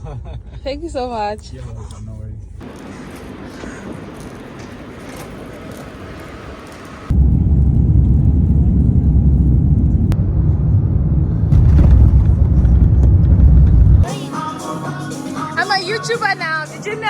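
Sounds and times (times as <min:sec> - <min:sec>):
loud low rumble: 0:07.1 - 0:14.1.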